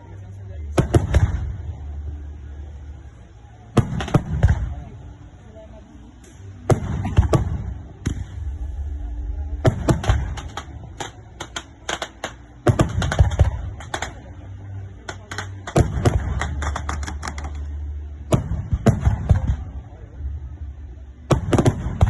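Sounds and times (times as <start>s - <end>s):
firecrackers popping: 0.7s - 1.9s, 3.7s - 5.1s, 6.2s - 19.8s, 21.3s - 22.0s
low rumble: 6.4s - 15.1s.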